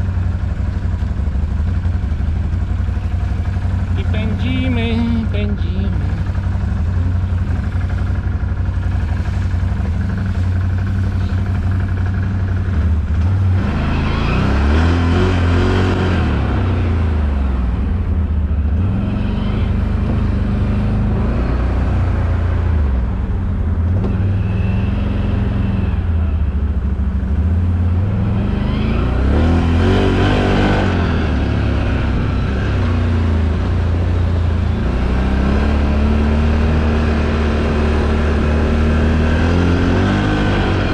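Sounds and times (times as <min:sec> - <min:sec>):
quad engine revving: 0:03.2 - 0:17.6, 0:18.6 - 0:22.9, 0:27.6 - 0:40.9.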